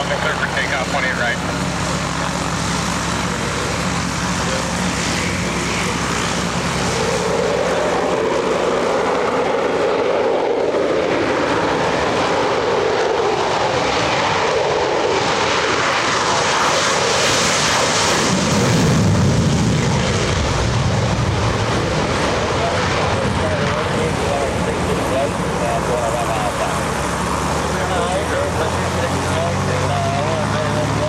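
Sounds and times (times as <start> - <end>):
jet engine roar at takeoff: 0.0 - 31.0.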